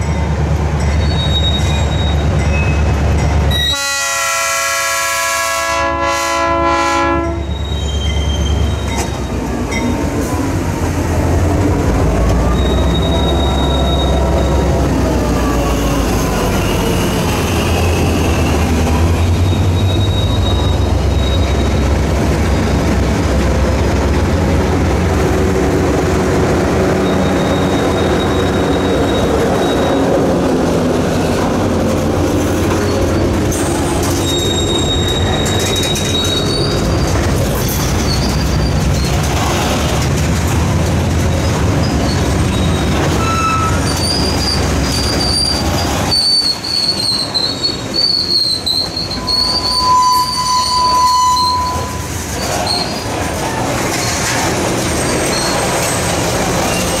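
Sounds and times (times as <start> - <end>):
diesel locomotive engine rumble: 0.0 - 57.0
train cars rolling rumble: 0.0 - 57.0
steel wheels squealing: 0.8 - 3.8, 7.4 - 10.5, 11.7 - 22.8, 26.8 - 31.5, 32.3 - 40.1, 41.3 - 57.0.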